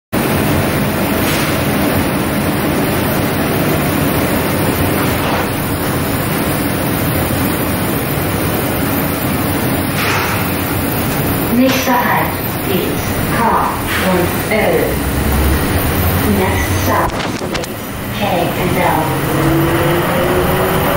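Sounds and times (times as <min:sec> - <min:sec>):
train interior rumble and hiss: 0:00.2 - 0:20.9.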